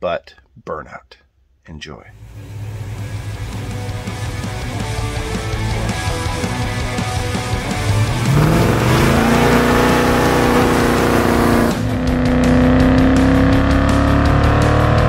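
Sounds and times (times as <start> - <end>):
car engine revving high: 7.2 - 15.0.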